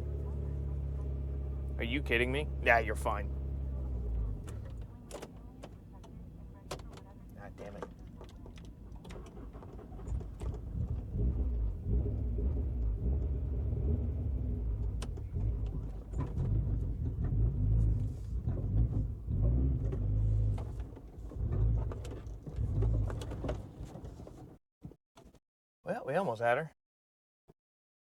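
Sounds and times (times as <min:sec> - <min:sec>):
car engine revving rough: 0:00.0 - 0:05.1, 0:09.1 - 0:23.9.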